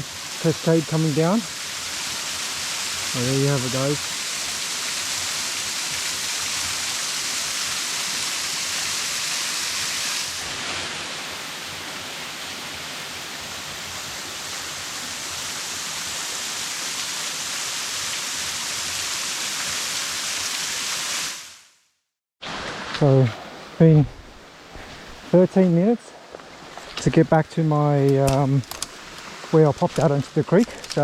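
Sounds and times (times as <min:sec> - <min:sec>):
waterfall splashing: 0:00.0 - 0:21.5, 0:26.7 - 0:31.0.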